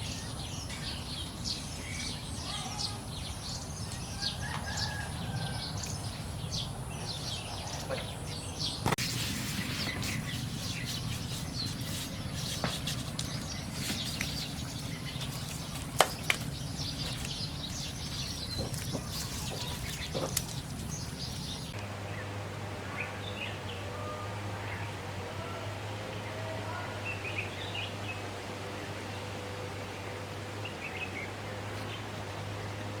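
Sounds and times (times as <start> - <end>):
birds chirping: 0.0 - 33.0
outdoor background noise: 0.0 - 33.0
steady low hum: 5.7 - 25.2.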